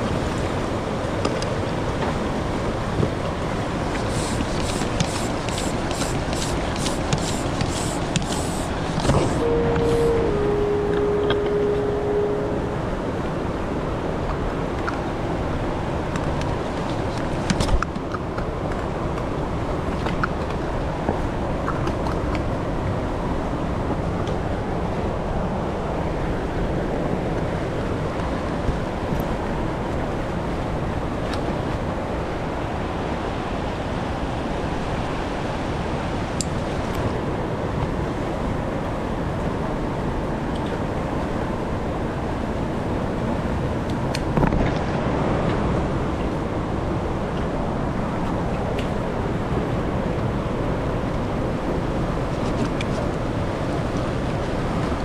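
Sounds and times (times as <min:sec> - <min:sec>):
water splashing: 0:00.0 - 0:13.7
river water rushing: 0:00.0 - 0:55.0
wind noise on microphone: 0:00.0 - 0:55.0.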